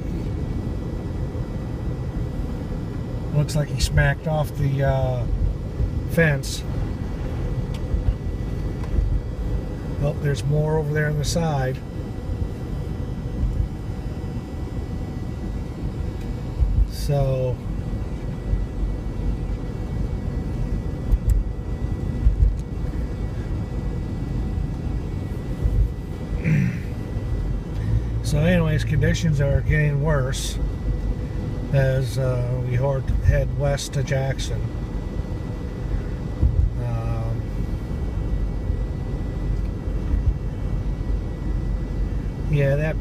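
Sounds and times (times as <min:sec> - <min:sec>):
car interior road rumble: 0:00.0 - 0:43.0.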